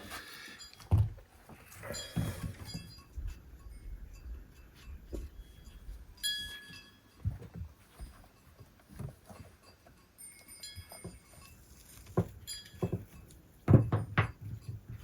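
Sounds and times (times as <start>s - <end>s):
farm animals moving about: 0.0s - 15.0s
light metallic clinks: 1.6s - 15.0s
irregular knocks: 12.1s - 15.0s.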